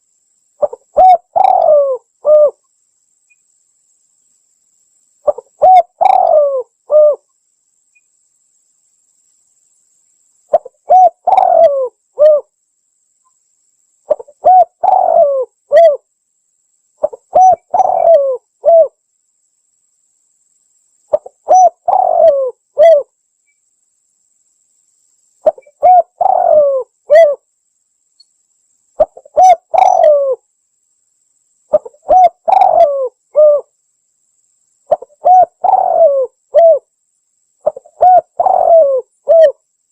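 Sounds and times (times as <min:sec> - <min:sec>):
dove cooing: 0:00.6 - 0:02.6, 0:05.2 - 0:07.2, 0:10.5 - 0:12.5, 0:14.1 - 0:16.0, 0:17.0 - 0:19.0, 0:21.1 - 0:23.1, 0:25.4 - 0:27.4, 0:29.0 - 0:30.4, 0:31.7 - 0:33.7, 0:34.9 - 0:36.8, 0:37.6 - 0:39.6.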